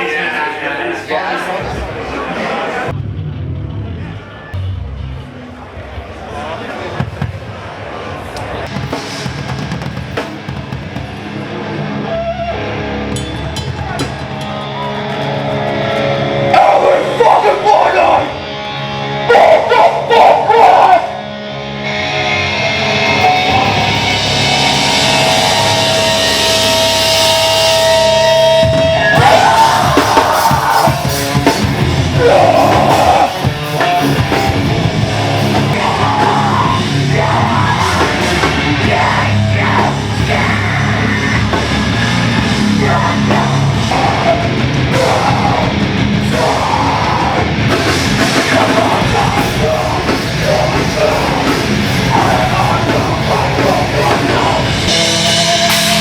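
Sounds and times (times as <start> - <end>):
hardcore punk rock music: 8.6 - 56.0
person shouting vocals: 32.1 - 33.5.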